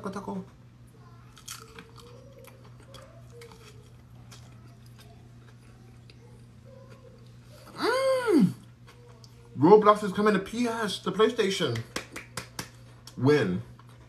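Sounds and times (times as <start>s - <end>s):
low steady hum: 0.0s - 14.0s
person chewing food: 1.2s - 7.8s, 8.5s - 9.6s, 12.6s - 14.0s
person exclaiming: 7.8s - 8.6s.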